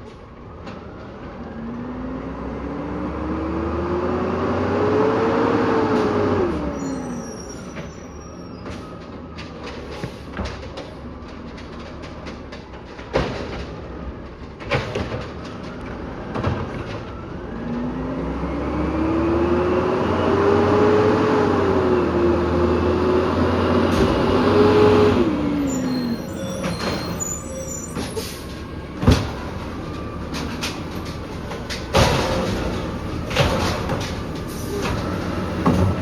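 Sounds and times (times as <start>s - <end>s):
truck engine revving with whine: 1.4s - 7.4s, 17.4s - 36.0s.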